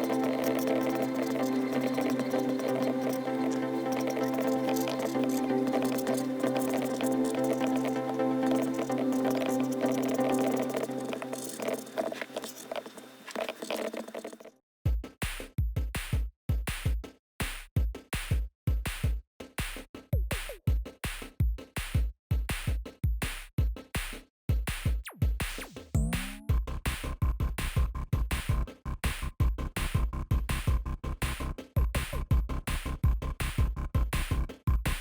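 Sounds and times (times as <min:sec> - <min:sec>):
electronic music: 0:00.0 - 0:14.4, 0:25.9 - 0:26.6
drum machine beat: 0:14.9 - 0:35.0.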